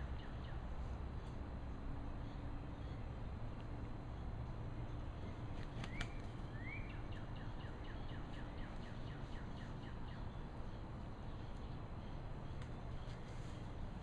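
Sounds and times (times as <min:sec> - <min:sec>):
bird calling whistles: 0:05.8 - 0:08.0.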